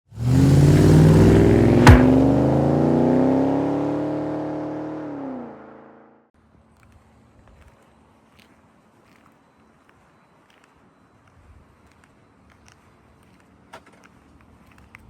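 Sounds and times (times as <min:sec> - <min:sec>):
car engine accelerating: 0:00.1 - 0:06.2
sharp crack: 0:01.7 - 0:02.6.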